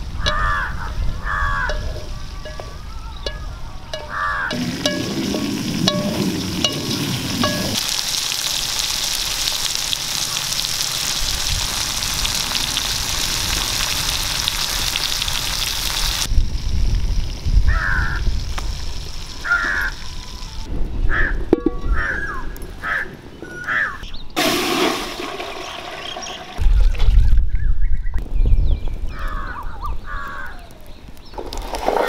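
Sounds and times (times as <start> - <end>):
food sizzling in oil: 0.0 - 20.7, 24.4 - 27.1
crow cawing: 0.2 - 3.0, 4.1 - 4.6, 17.7 - 18.2, 19.4 - 20.0, 21.1 - 24.0
metal ladle scraping pan: 1.6 - 7.8.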